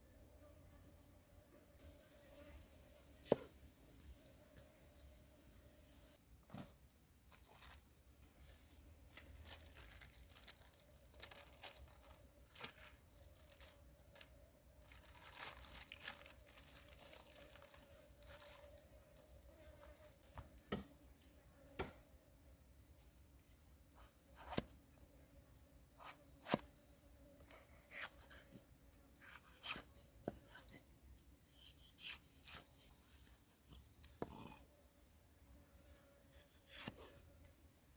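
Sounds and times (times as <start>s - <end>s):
faint rustling and tearing: 8.7s - 19.0s.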